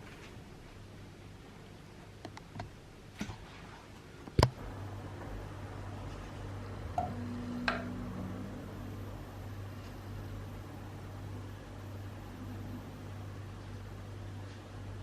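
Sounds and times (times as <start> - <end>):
low steady machine hum: 2.8 - 15.0
brief higher hum: 4.6 - 14.2.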